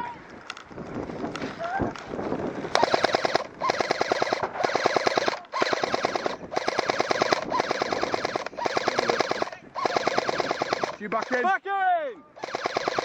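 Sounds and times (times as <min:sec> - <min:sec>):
airsoft gun firing bursts: 0:02.7 - 0:11.6, 0:12.4 - 0:13.0.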